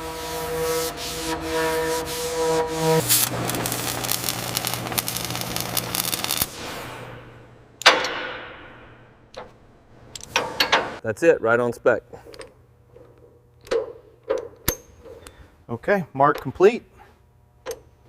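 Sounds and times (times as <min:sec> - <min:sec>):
steady humming tone: 0:00.0 - 0:18.0
dense crackling rasp: 0:01.2 - 0:06.6.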